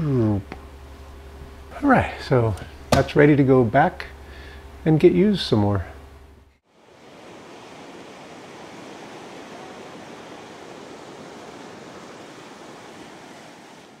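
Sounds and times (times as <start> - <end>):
wind: 6.6 - 14.0
waves washing on shore: 6.7 - 14.0.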